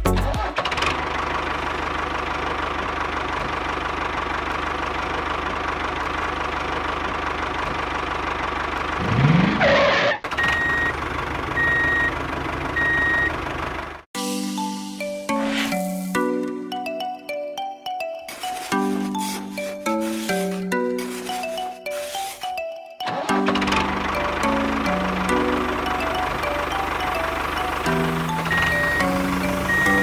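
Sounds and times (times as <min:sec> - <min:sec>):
vehicle engine running and revving: 0:00.1 - 0:14.1, 0:23.4 - 0:30.0
reversing alarm beeps: 0:10.4 - 0:10.9, 0:11.6 - 0:12.2, 0:12.8 - 0:13.4, 0:27.9 - 0:30.0.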